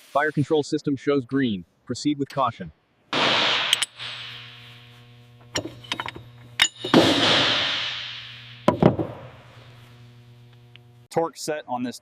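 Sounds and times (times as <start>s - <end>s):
low machine hum: 3.6s - 11.1s
metallic clanks and clinks: 5.5s - 7.2s
loud hissing bursts: 7.1s - 9.9s.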